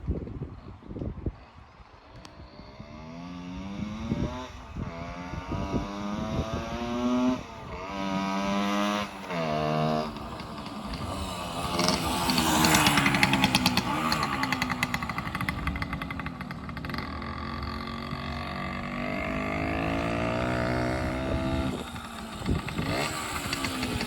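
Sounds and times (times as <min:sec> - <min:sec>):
two-stroke motorcycle engine accelerating: 0:01.8 - 0:24.0.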